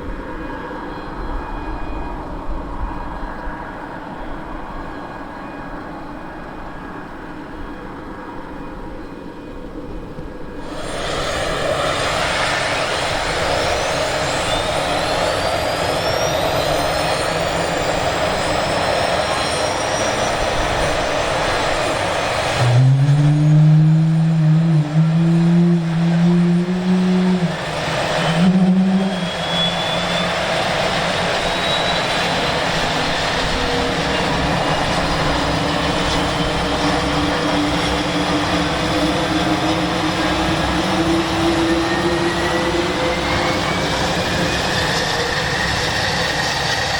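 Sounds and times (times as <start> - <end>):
turboprop engines running: 9.2 - 46.9
strong low drone: 19.2 - 29.5.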